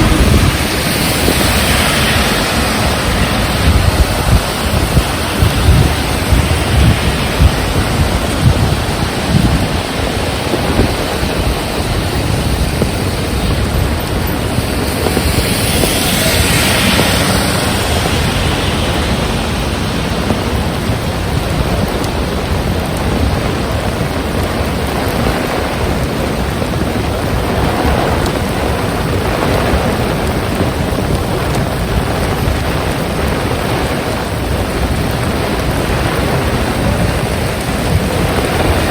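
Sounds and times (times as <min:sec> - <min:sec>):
heavy rain falling: 0:00.0 - 0:38.9
wind gusting against microphone: 0:00.0 - 0:38.9.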